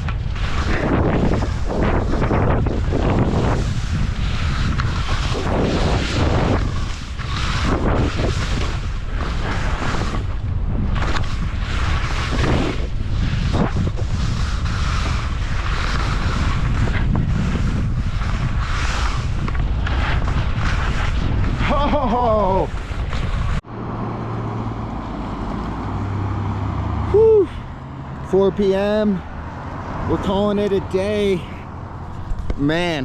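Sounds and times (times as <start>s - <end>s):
skis carving through snow: 0.0s - 23.6s
wind buffeting microphone: 0.0s - 23.7s, 24.6s - 33.0s.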